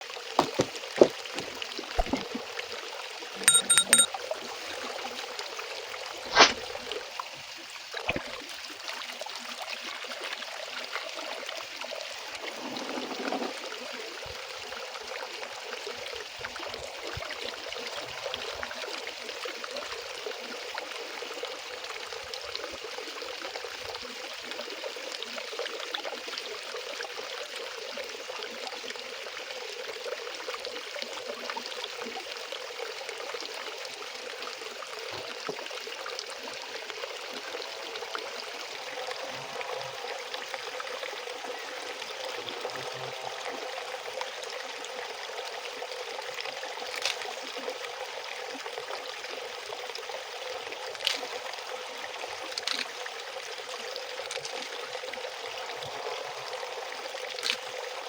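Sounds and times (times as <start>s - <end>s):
water running: 0.1s - 8.4s
ringing metallic clinks: 3.5s - 4.1s.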